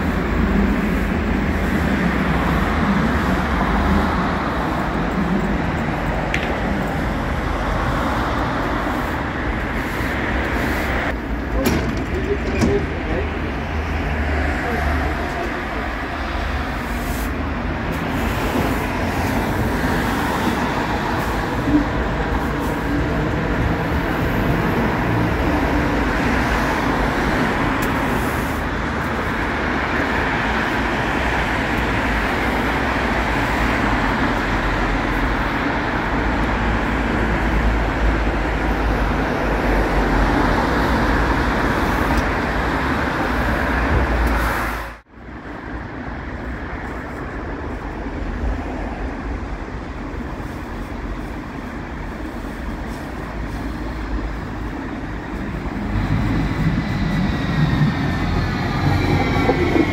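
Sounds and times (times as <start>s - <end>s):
light-rail train moving: 0.0s - 59.9s
road traffic: 0.0s - 59.9s
station background: 53.4s - 59.9s.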